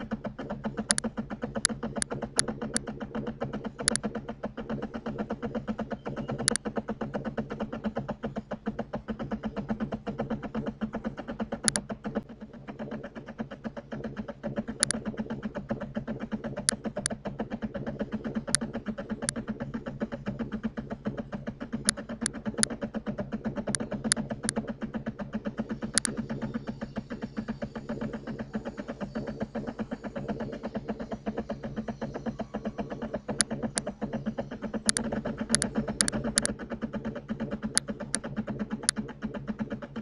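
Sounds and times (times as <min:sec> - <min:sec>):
steady machine hum: 0:00.0 - 0:40.0
computer mouse clicks: 0:00.2 - 0:07.8, 0:11.5 - 0:12.2, 0:14.6 - 0:15.1, 0:16.5 - 0:17.2, 0:18.0 - 0:19.5, 0:21.1 - 0:22.8, 0:23.6 - 0:24.7, 0:25.6 - 0:26.5, 0:32.9 - 0:39.1.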